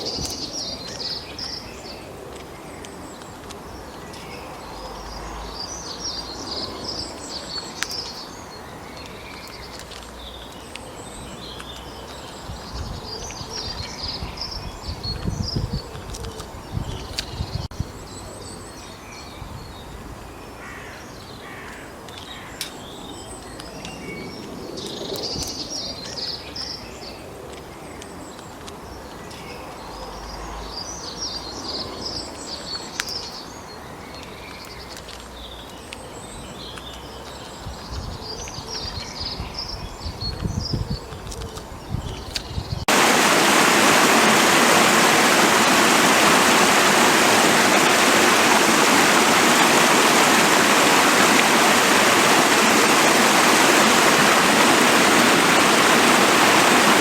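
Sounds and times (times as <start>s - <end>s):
birds twittering: 42.0s - 57.0s
steady background hiss: 42.9s - 57.0s.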